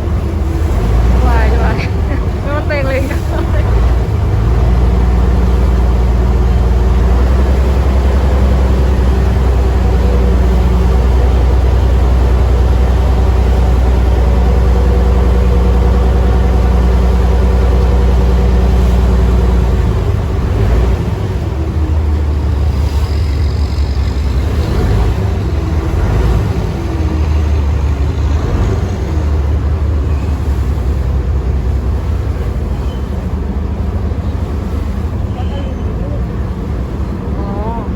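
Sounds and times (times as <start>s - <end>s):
boat diesel engine rumbling: 0.0s - 37.9s.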